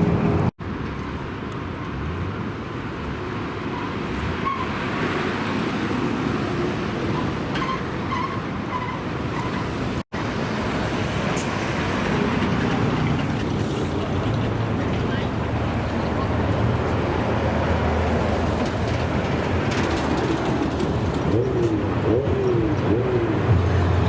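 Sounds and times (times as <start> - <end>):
car engines rumbling: 0.0 - 24.0
traffic noise: 0.0 - 24.0.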